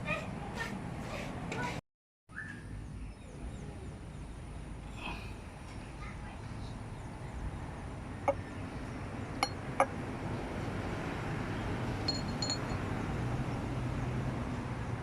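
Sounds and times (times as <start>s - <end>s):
light ringing clinks: 12.1s - 12.8s.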